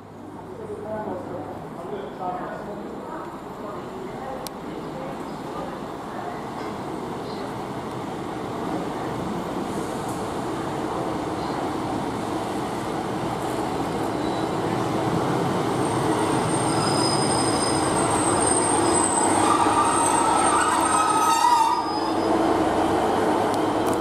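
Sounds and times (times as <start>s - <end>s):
train engines and wheels rumbling: 0.0s - 24.0s
high brake squeal: 14.0s - 14.6s, 15.8s - 22.5s.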